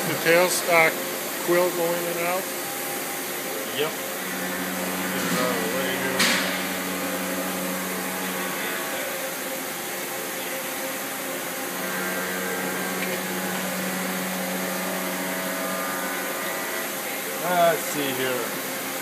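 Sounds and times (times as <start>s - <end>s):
lathe running with mechanical hum: 0.0s - 19.0s.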